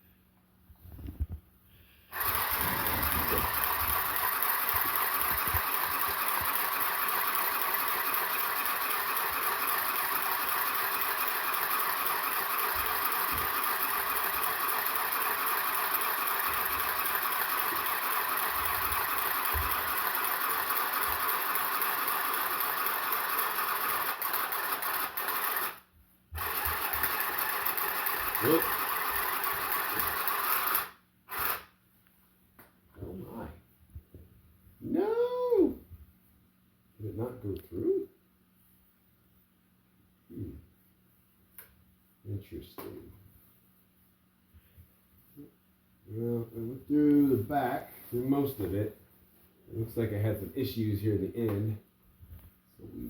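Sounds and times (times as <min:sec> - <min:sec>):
electric sewing machine rattling: 0:02.1 - 0:31.7.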